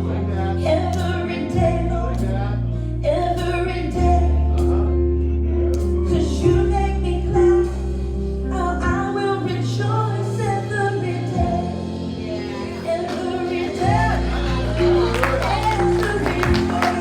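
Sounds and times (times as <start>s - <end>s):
woman singing: 0.0s - 4.9s, 6.1s - 17.0s
held bass notes: 0.0s - 17.0s
band playing: 11.4s - 17.0s.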